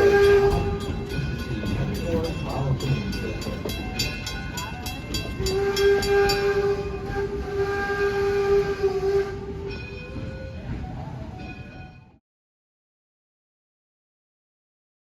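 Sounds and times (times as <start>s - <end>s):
steam locomotive whistle: 0.0s - 1.3s, 5.3s - 10.6s
moving train noise: 0.0s - 12.2s.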